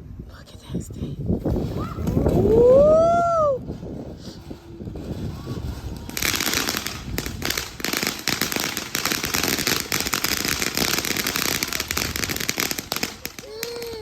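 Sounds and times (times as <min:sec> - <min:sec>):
firework crackling and popping: 0:01.4 - 0:14.0.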